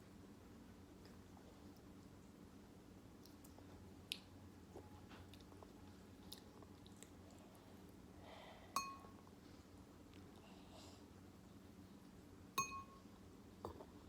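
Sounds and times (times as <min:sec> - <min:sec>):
person chewing noodles: 0:03.2 - 0:07.9
sharp ringing clink: 0:08.8 - 0:09.1, 0:12.6 - 0:13.0.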